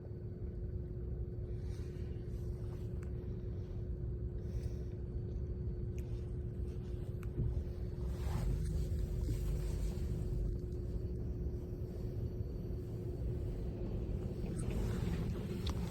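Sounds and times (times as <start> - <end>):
machine hum: 0.0 - 15.9
car rumble: 5.4 - 15.9.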